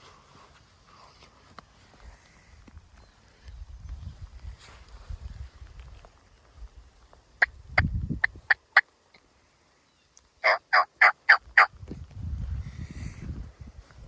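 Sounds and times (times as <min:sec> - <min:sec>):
low rustling movement: 0:00.0 - 0:07.2
turkey yelps: 0:10.4 - 0:11.7.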